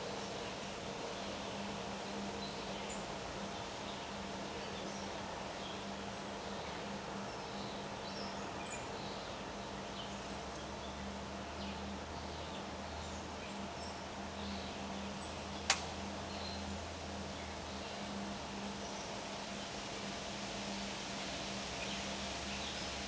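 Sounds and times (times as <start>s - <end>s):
sharp click: 15.7s - 16.0s.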